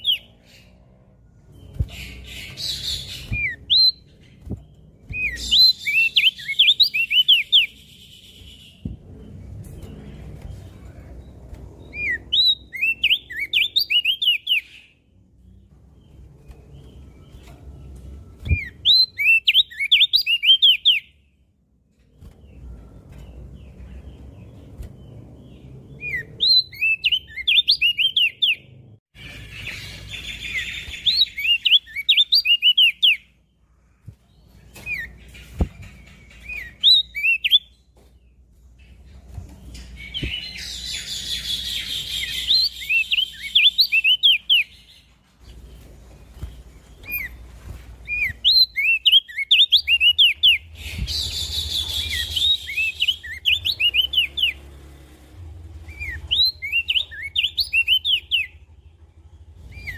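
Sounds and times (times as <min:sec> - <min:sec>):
bird chirping song: 0:00.0 - 0:59.9
low background rumble: 0:53.6 - 0:59.9.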